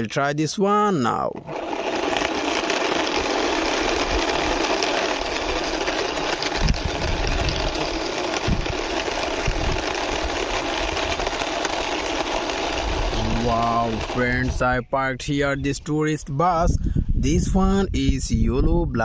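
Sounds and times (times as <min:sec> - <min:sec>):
toy bus wheels whirring rattle: 0:01.4 - 0:14.8.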